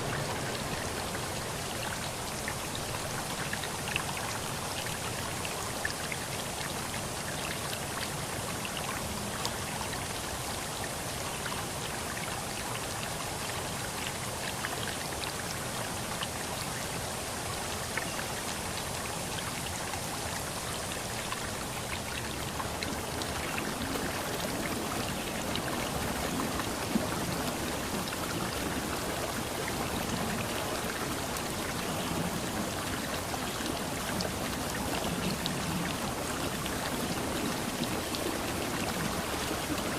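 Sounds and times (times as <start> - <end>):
fine water splashes: 0.0 - 7.0
stream water rushing: 0.0 - 39.9.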